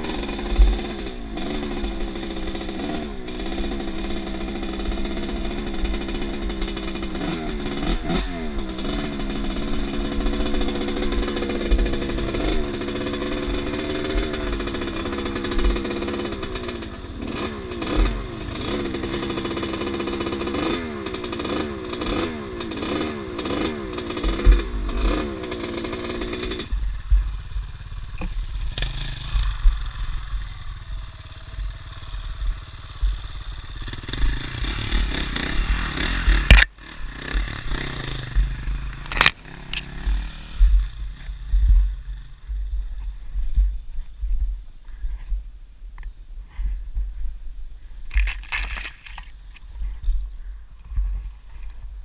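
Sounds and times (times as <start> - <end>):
motorcycle engine revving: 0.0 - 45.4, 46.0 - 52.0
wind thumps on microphone: 40.0 - 48.3, 49.2 - 52.0.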